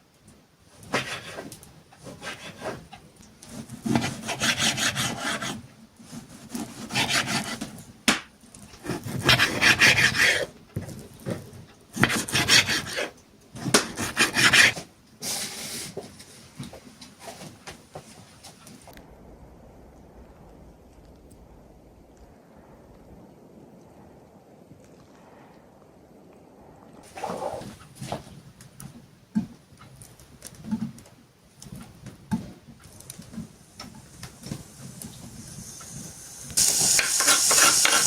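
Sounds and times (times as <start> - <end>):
rasping scraping strokes: 0.9 - 2.9, 3.5 - 7.8, 8.8 - 10.5, 12.0 - 14.9, 36.6 - 38.0.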